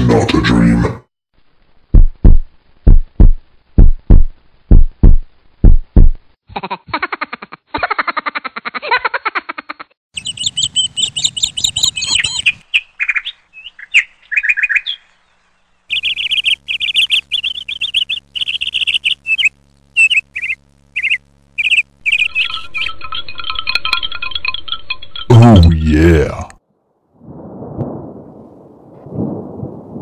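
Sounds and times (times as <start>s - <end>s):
bird chirping in trills: 10.2s - 25.3s.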